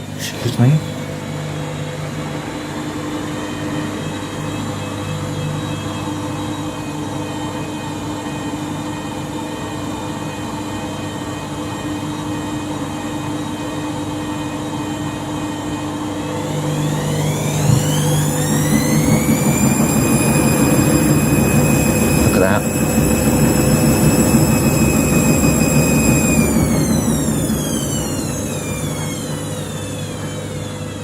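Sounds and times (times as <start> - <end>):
washing machine drum spinning: 16.2 - 31.0.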